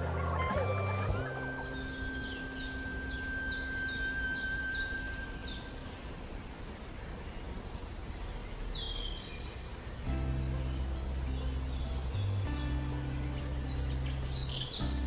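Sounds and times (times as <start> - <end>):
bird calling descending notes: 0.0 - 6.5
thin steady tone: 0.0 - 7.6
hissing natural background: 0.0 - 15.0.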